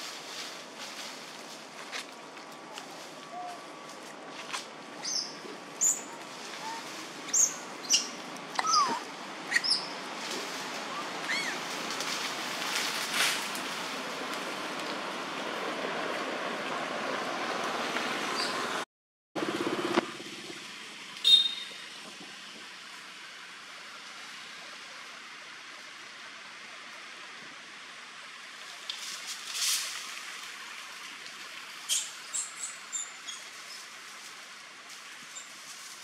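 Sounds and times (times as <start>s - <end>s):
outdoor hiss: 19.4s - 36.0s.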